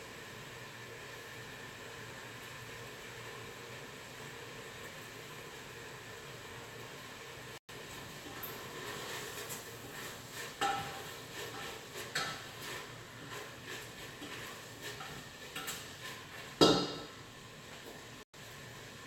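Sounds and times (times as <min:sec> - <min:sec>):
pots and pans clinking: 0:08.2 - 0:17.2.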